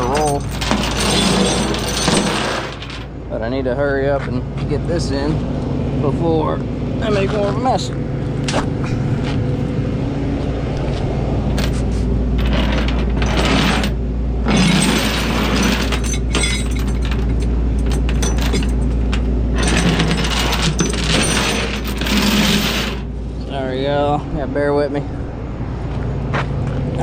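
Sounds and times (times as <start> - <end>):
grinding mechanical noise: 0.0 - 3.2, 7.1 - 23.2
diesel engine running: 0.0 - 27.0
metallic clicks and clanks: 14.5 - 22.6
hydraulic winch pulling: 19.6 - 23.1.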